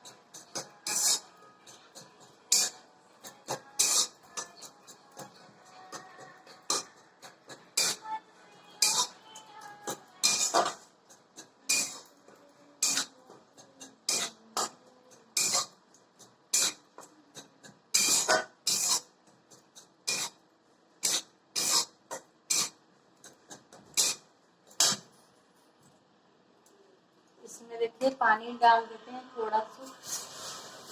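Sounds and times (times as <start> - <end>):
spatula scraping a pan: 0.0 - 8.1, 8.8 - 9.2, 9.9 - 12.1, 12.8 - 15.8, 16.5 - 16.8, 17.4 - 19.1, 19.8 - 20.4, 21.0 - 25.2, 29.9 - 30.9.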